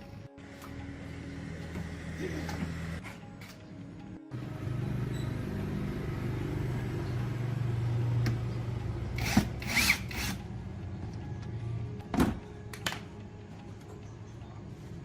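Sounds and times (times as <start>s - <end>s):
small electric motor running: 9.2s - 10.4s.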